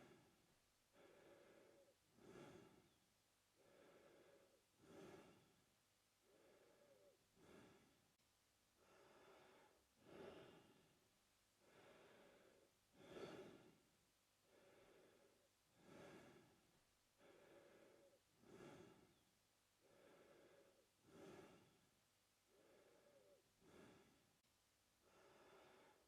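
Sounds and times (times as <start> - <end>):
man breathing through mouth: 0.9 - 3.0, 3.6 - 5.5, 6.2 - 8.0, 8.8 - 10.9, 11.6 - 13.8, 14.5 - 16.6, 17.2 - 19.2, 19.8 - 21.8, 22.5 - 24.2.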